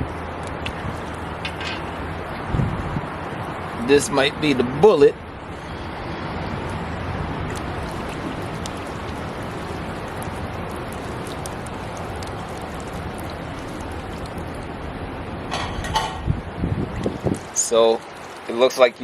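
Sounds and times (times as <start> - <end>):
water splashing into bird bath: 0.5 - 2.5, 7.4 - 14.9, 16.8 - 19.0.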